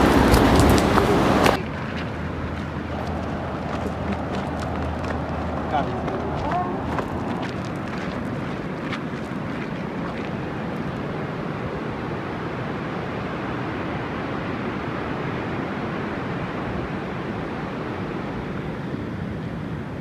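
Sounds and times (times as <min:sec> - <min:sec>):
ocean surf rushing: 0:00.0 - 0:01.6.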